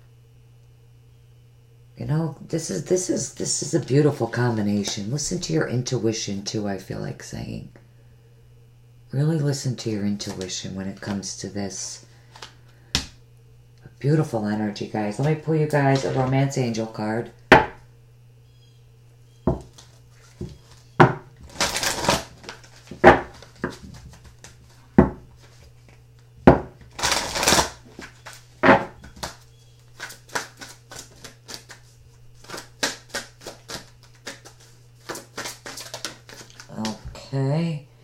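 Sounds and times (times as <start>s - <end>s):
deck of cards knocking: 17.5s - 17.8s, 19.5s - 19.8s, 20.4s - 21.3s, 22.9s - 24.2s, 25.0s - 25.3s, 26.4s - 26.8s, 28.0s - 29.4s
cards riffling: 21.4s - 24.8s, 26.9s - 37.0s.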